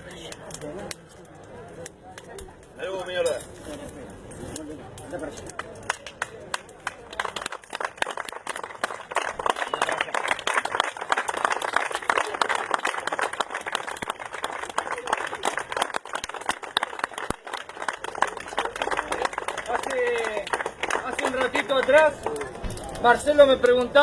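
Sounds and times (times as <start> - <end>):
crowd applauding: 5.5 - 22.6.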